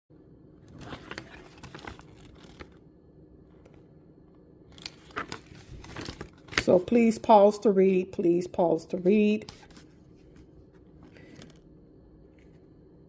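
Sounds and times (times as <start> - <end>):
plastic packaging crinkling: 0.7 - 2.8.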